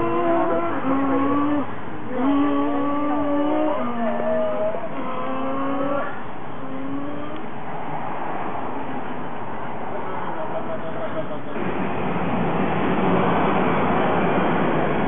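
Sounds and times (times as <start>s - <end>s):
people imitating car engines: 0.0s - 7.5s.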